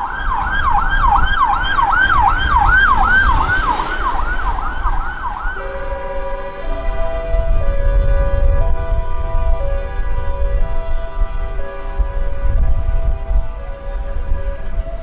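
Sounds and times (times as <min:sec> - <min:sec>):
emergency siren yelping: 0:00.0 - 0:15.0
low traffic rumble: 0:00.0 - 0:15.0
music with held notes: 0:05.6 - 0:15.0.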